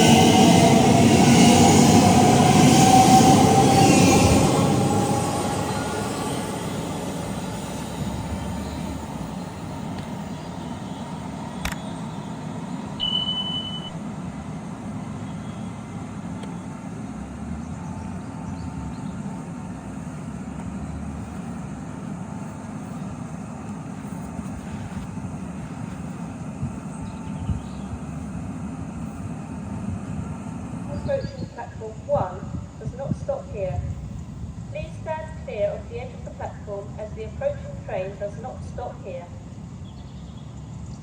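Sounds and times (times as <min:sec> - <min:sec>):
train rumbling: 0:00.0 - 0:41.0
short high beep: 0:13.0 - 0:14.0.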